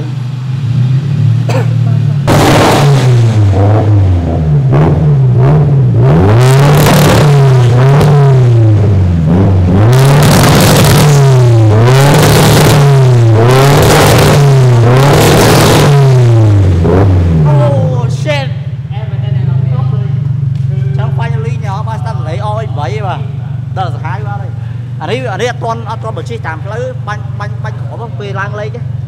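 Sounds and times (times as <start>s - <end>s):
rotary engine revving: 0.8s - 18.2s.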